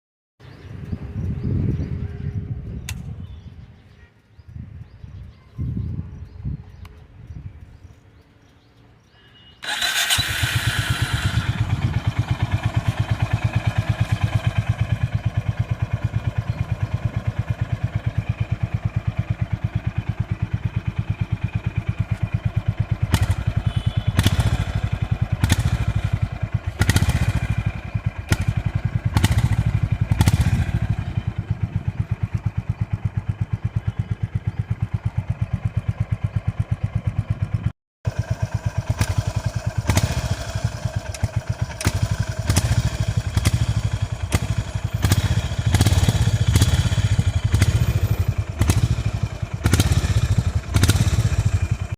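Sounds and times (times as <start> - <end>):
motorcycle engine idling: 0.4 - 51.9
motorcycle engine starting: 9.5 - 51.9
engine revving: 9.6 - 19.5, 20.5 - 32.7, 38.1 - 51.9.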